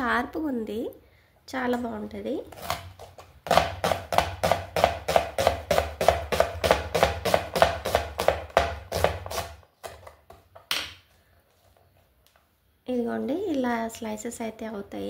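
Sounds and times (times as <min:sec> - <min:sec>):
knife chopping onions on board: 0:02.5 - 0:10.3.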